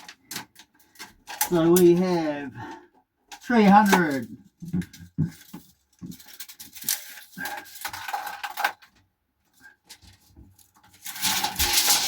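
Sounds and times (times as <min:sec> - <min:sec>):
scraping and rubbing: 0:09.6 - 0:12.0
tape measure clicks and rattles: 0:11.0 - 0:12.0.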